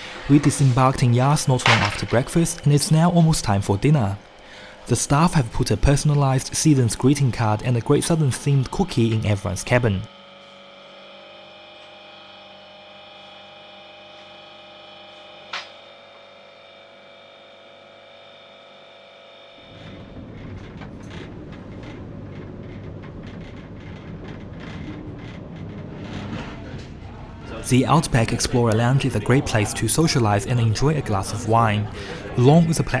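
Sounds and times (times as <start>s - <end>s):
multi-tone hum in train carriage: 0.0s - 33.0s
train rumbling and rattling: 20.1s - 27.2s.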